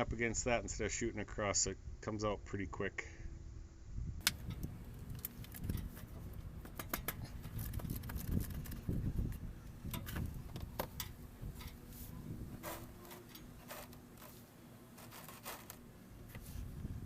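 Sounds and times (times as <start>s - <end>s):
low handling rumble: 4.2s - 15.0s.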